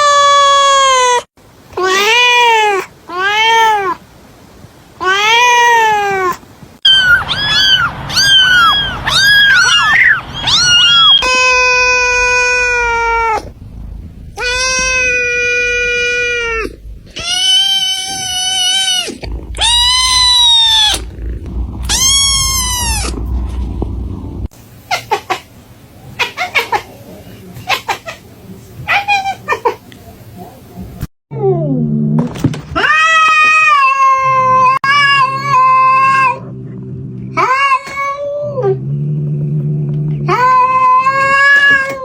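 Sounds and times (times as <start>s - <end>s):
cats meowing: 5.0s - 13.6s, 14.3s - 24.0s, 32.8s - 36.5s, 37.4s - 38.8s, 39.5s - 42.0s.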